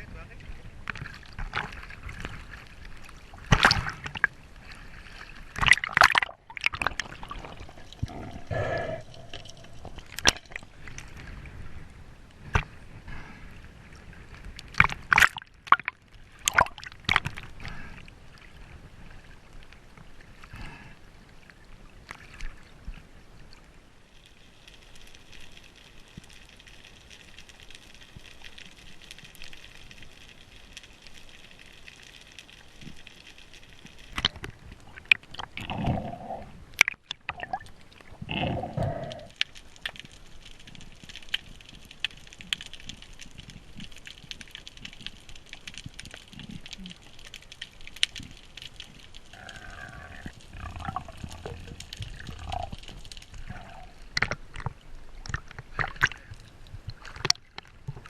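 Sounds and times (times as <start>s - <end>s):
water sloshing and gurgling: 0.0s - 58.0s
sharp knocks and splashes: 3.4s - 4.3s, 5.5s - 7.4s, 14.7s - 17.4s.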